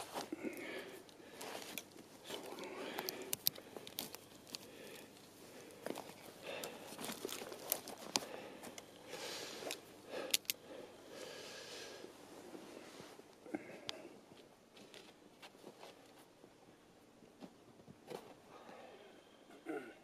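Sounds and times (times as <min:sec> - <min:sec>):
crunching and rustling in snow: 0:00.0 - 0:00.6
sharp clicks: 0:10.2 - 0:10.6.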